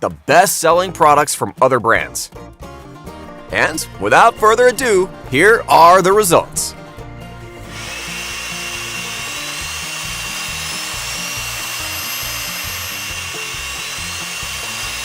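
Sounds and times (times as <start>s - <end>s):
air blower whine: 3.4s - 15.0s.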